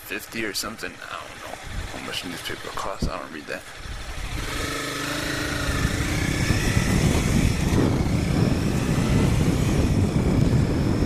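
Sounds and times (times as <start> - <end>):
motorcycle engine accelerating: 1.1 - 11.0
wind rushing over microphone: 1.5 - 2.2, 3.8 - 11.0.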